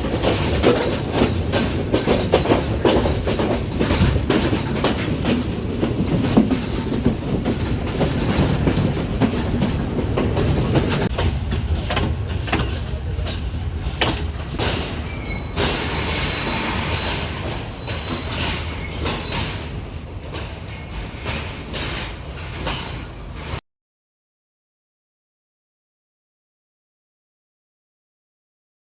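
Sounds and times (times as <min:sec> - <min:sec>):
wheel clicks over rail joints: 0:00.0 - 0:19.7
train rumbling on rails: 0:00.0 - 0:23.6
metallic wheel squeal: 0:15.0 - 0:23.6.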